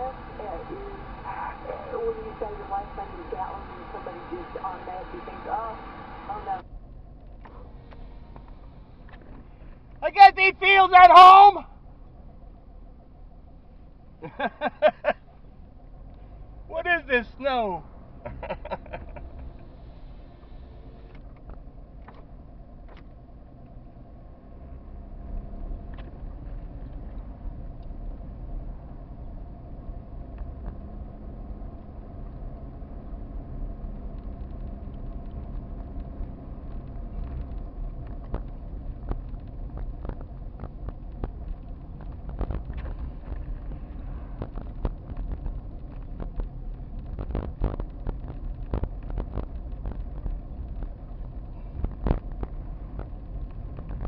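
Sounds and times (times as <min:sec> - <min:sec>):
engine and tyre rumble: 0:00.0 - 0:54.0
scattered clicks and knocks: 0:44.4 - 0:51.0.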